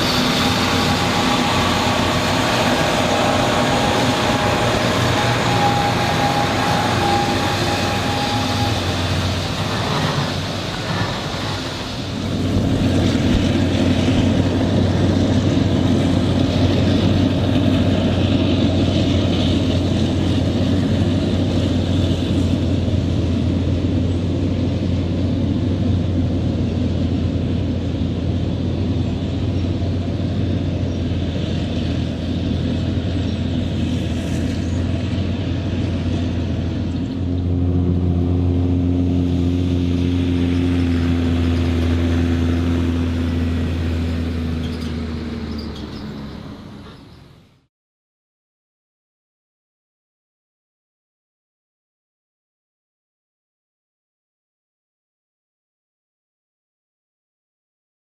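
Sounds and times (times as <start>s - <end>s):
rushing noise: 0.0s - 46.8s
diesel farm machinery droning: 0.0s - 47.7s.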